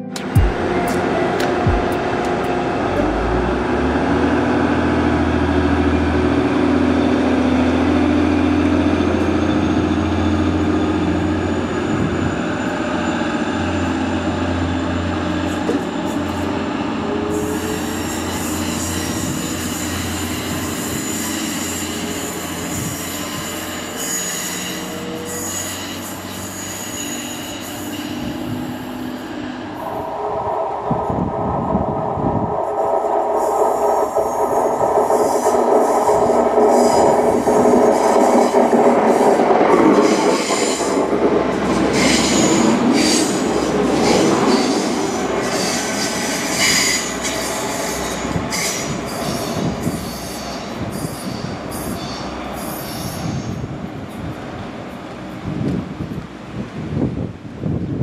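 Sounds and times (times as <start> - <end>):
diesel train engine droning: 0.0 - 57.0
high squeal from rails: 4.0 - 55.6.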